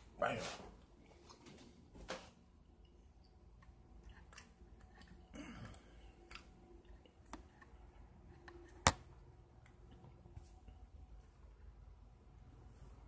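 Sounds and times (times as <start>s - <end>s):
person chewing: 3.2s - 8.8s.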